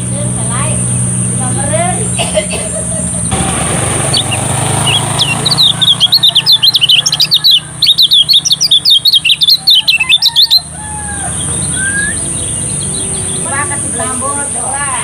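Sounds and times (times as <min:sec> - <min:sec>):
bird singing high chirping notes: 0:03.9 - 0:14.9.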